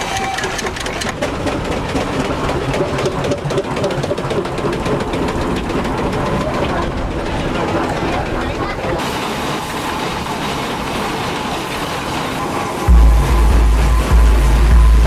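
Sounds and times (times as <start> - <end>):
steam engine clattering: 0.0 - 15.0.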